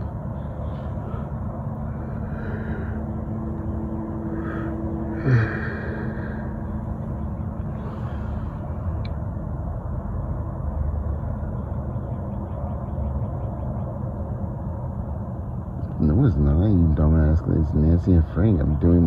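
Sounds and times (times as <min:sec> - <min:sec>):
faint higher calls: 0:00.0 - 0:09.1
motor vehicle rumble: 0:00.0 - 0:19.0.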